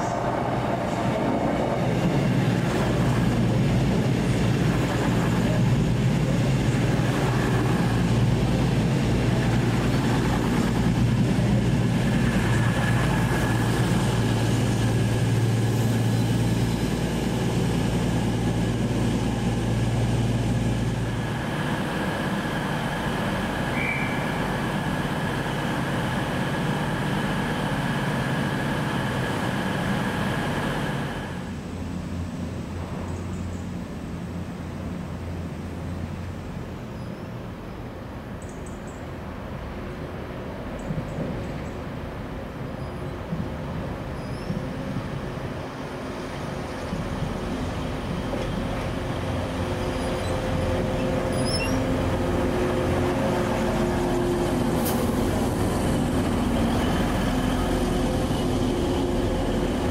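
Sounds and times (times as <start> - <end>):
train wheel noise: 0.0 - 35.4, 39.5 - 59.9
diesel train engine drone: 0.0 - 59.9
thin high squeal: 51.3 - 51.9.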